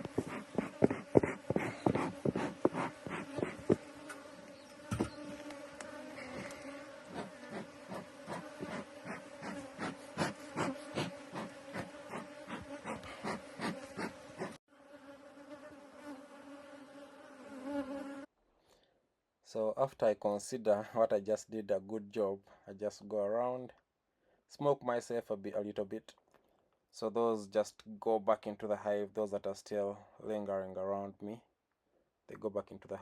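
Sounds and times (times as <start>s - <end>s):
honeybees buzzing: 0.0s - 18.3s.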